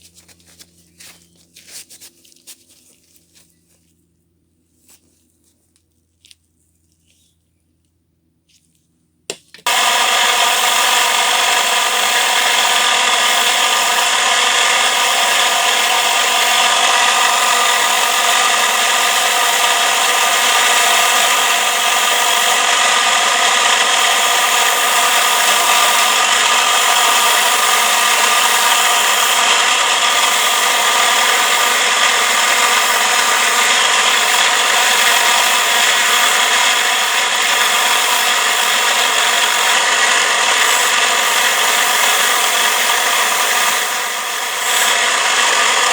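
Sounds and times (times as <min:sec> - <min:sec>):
electric power tool running: 0:09.6 - 0:45.9.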